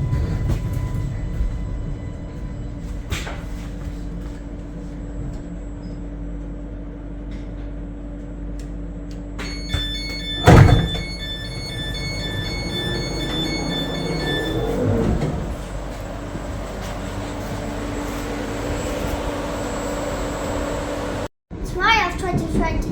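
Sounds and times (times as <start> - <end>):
electric train rumbling: 0.0 - 21.3
electronic beeping: 9.4 - 15.1.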